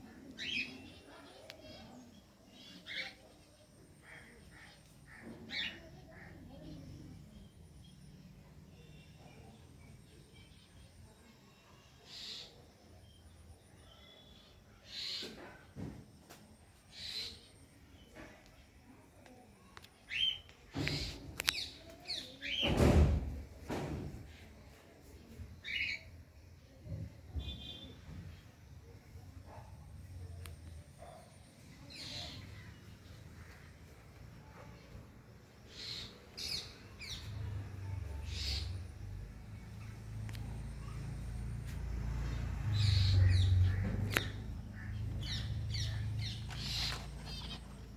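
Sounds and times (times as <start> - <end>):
small birds chirping: 0.0 - 15.6, 16.9 - 23.2, 26.8 - 47.9
bird chirping: 42.6 - 47.9.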